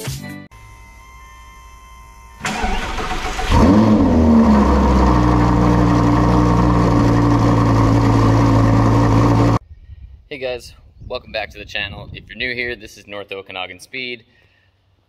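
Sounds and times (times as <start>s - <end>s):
car engine starting and idling: 2.4s - 9.6s.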